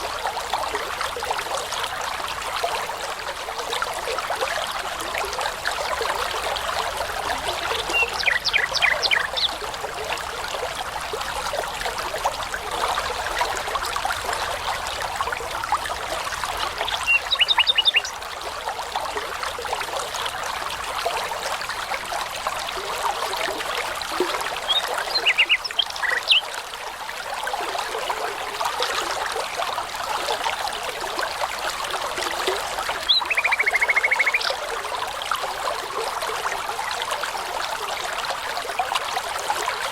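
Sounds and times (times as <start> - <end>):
babbling brook: 0.0 - 39.9
songbird singing: 7.7 - 9.6, 16.8 - 18.2, 24.7 - 26.5, 33.0 - 34.6.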